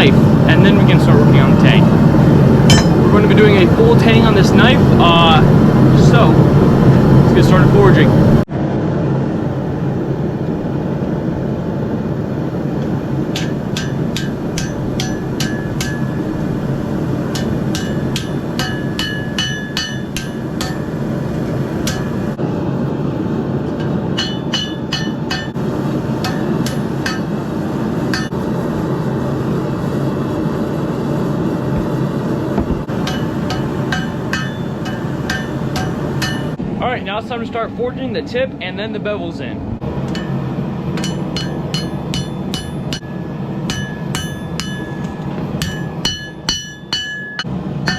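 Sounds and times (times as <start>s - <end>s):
hammer blows on hot steel: 0.0s - 8.3s, 12.8s - 22.4s, 23.7s - 28.5s, 31.7s - 36.6s, 40.0s - 47.9s.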